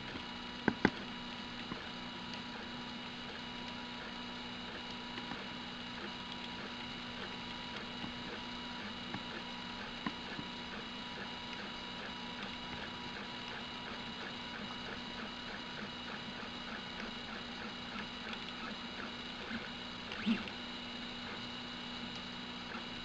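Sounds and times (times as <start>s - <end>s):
stepper motors whining: 19.4s - 21.4s.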